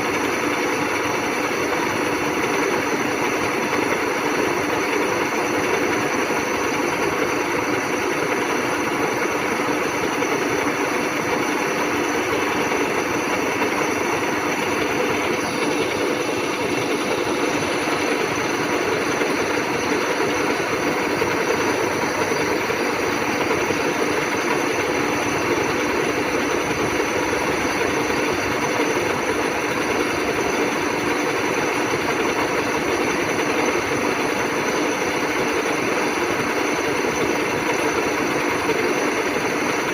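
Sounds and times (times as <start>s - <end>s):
milling machine humming: 0.0s - 39.9s.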